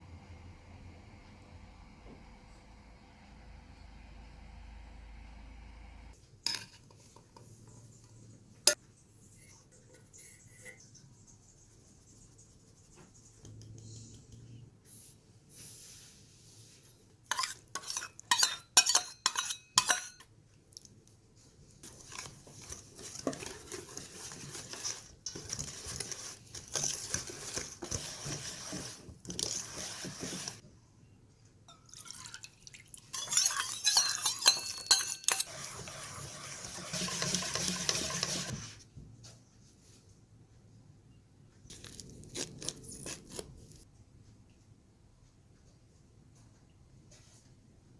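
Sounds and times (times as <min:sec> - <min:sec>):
metal utensils clinking: 0:17.3 - 0:20.3, 0:33.1 - 0:38.5
stirring batter: 0:17.3 - 0:20.3, 0:21.8 - 0:30.7, 0:32.0 - 0:38.8.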